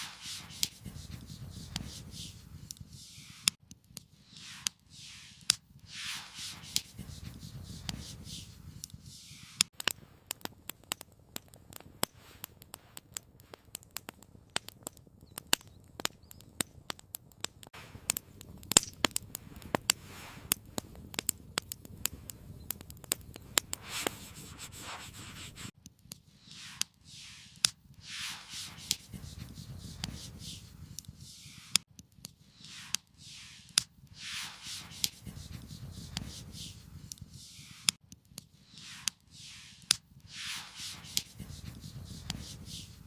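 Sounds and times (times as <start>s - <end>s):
soft rushing swells: 0.0s - 2.4s, 4.3s - 7.2s, 26.5s - 30.6s, 32.6s - 36.8s, 38.8s - 42.8s
campfire crackling and popping: 0.0s - 4.8s, 5.4s - 43.0s.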